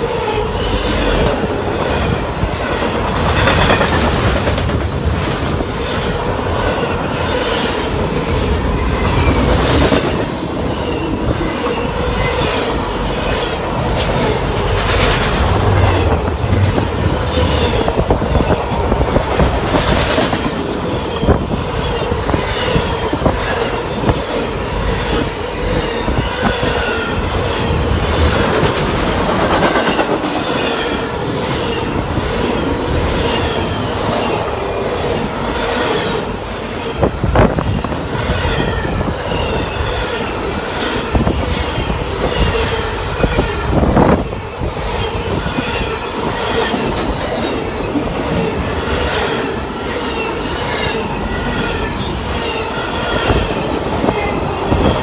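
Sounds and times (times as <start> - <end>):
train wheels clacking over rail joints: 0.8 - 36.2.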